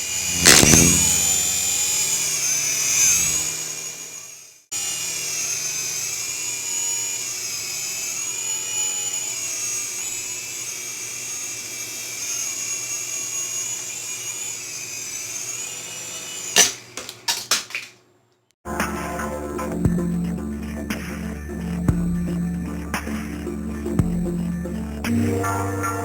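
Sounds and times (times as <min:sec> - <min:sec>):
toy helicopter rotor whining: 0:00.0 - 0:17.4.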